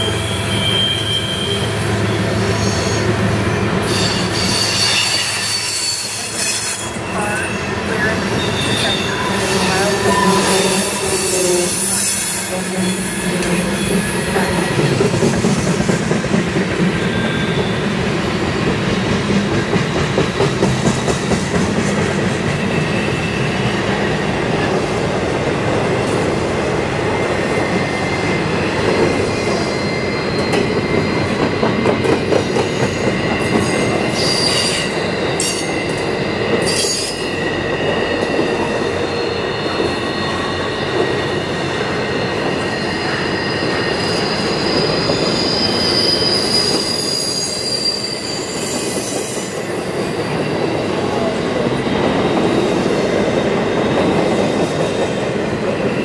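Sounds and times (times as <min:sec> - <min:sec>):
train wheels rumbling on rail: 0:00.0 - 0:56.0
high wheel squealing: 0:41.8 - 0:50.4.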